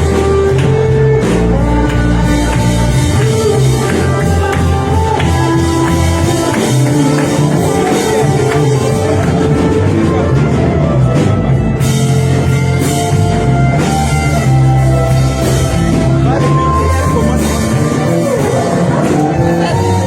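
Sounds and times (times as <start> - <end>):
bass: 0.0 - 20.0
guitar: 0.0 - 20.0
steady drum beat: 0.0 - 20.0
worship band music: 0.0 - 20.0.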